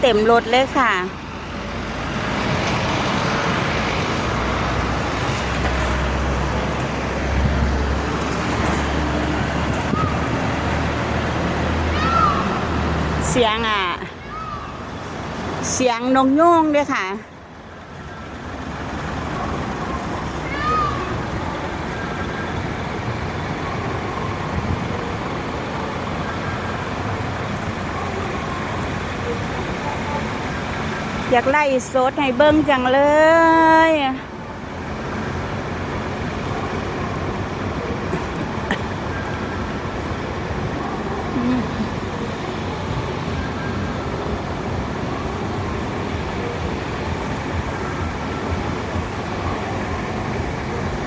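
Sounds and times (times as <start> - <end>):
bus engine rumbling: 0.0 - 51.0
traffic noise: 0.0 - 51.0.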